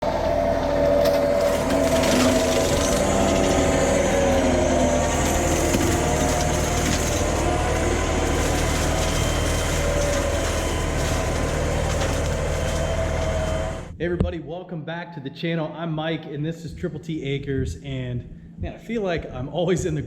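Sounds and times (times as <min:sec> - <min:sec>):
rotary cutter crackling wood: 0:00.0 - 0:13.9
tractor engine running: 0:00.0 - 0:14.0.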